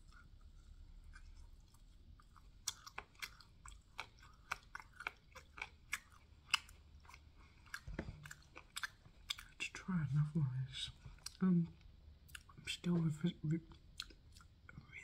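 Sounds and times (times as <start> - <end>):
wet chewing clicks and smacks: 1.0 - 9.7, 11.0 - 12.8, 13.7 - 14.8.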